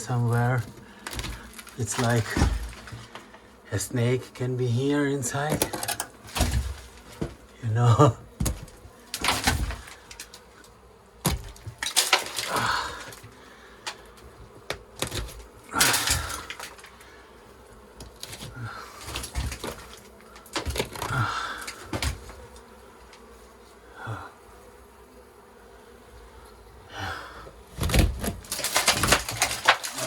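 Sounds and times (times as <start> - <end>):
beeswax comb cracking and crunching: 0.0 - 3.3, 8.4 - 17.1, 18.0 - 23.2, 28.0 - 30.0.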